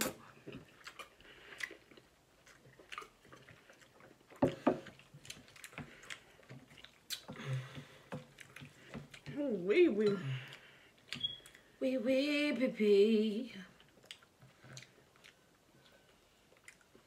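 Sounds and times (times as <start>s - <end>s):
chewing and wet mouth noises: 0.0s - 9.4s, 10.4s - 11.8s, 13.7s - 17.0s.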